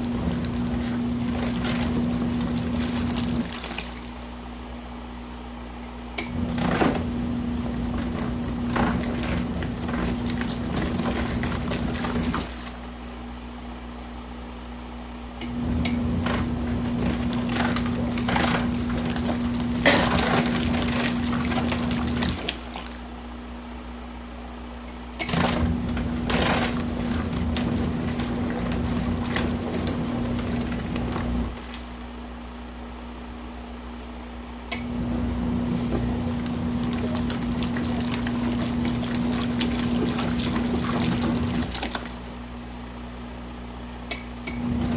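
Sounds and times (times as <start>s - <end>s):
water sloshing: 0.0s - 4.3s, 6.5s - 13.0s, 16.2s - 23.2s, 25.3s - 32.2s, 35.6s - 42.4s
washing machine motor humming: 0.0s - 44.9s.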